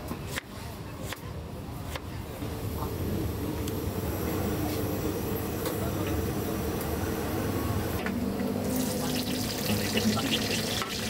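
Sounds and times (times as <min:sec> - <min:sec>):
meat frying sizzle: 0:08.7 - 0:11.0.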